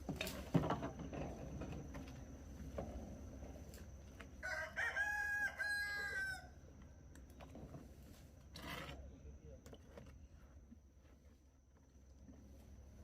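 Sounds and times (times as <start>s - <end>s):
rooster crowing: 4.4s - 6.6s.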